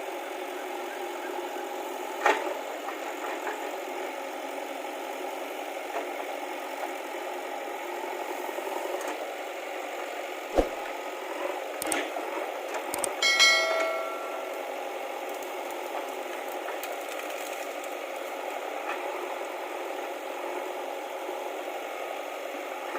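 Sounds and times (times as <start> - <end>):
backhoe loader running: 10.6 - 20.8
clicks: 11.8 - 12.0, 13.0 - 13.2
ringing metal clang: 13.2 - 14.8.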